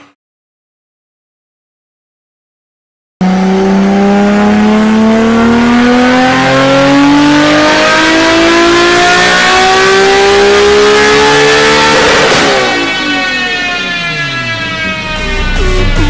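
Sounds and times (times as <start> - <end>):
car engine accelerating hard: 3.2 - 16.0.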